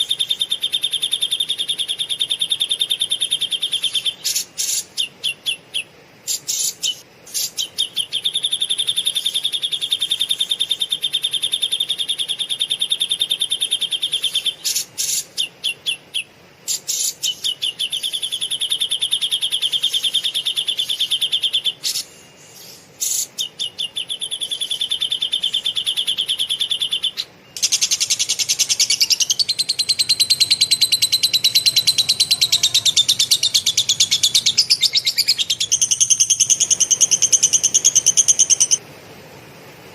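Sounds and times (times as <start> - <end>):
songbird rattling trills: 23.0 - 38.8.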